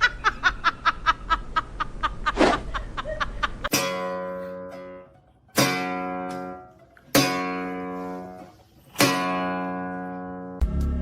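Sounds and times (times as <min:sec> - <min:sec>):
music with steady beat: 0:10.6 - 0:11.0.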